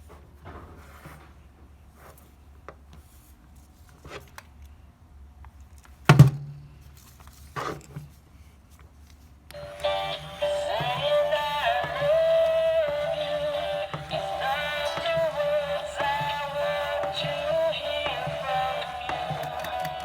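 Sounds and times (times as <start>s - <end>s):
toy playing tinny electronic song: 9.5s - 20.0s.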